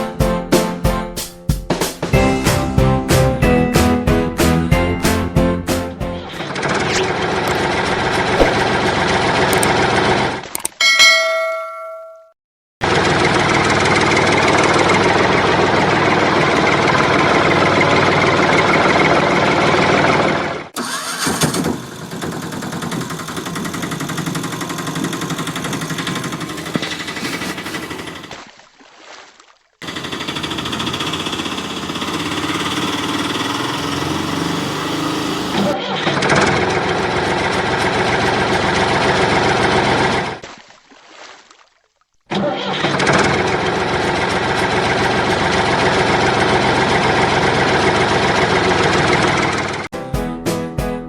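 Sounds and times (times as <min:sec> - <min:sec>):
vehicle engine running: 0:06.2 - 0:10.4, 0:12.8 - 0:28.4, 0:29.8 - 0:40.4, 0:43.1 - 0:49.9.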